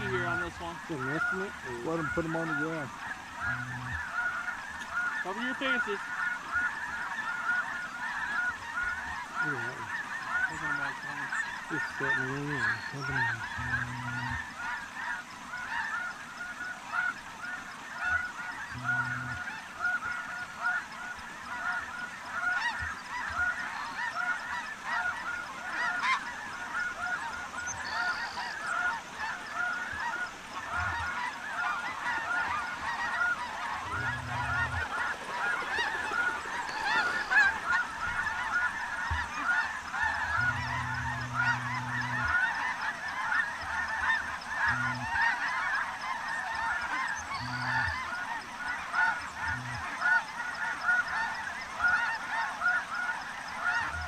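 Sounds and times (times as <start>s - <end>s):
flock of geese honking: 0.0s - 54.0s.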